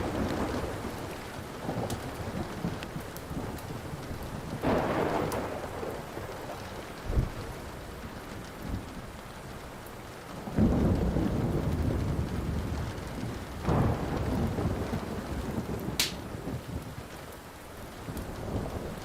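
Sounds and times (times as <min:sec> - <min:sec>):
thunder rumbling: 0:00.0 - 0:09.6, 0:10.3 - 0:17.2, 0:17.9 - 0:19.0
steady rain: 0:00.0 - 0:19.0
wood fire pop: 0:16.0 - 0:16.2.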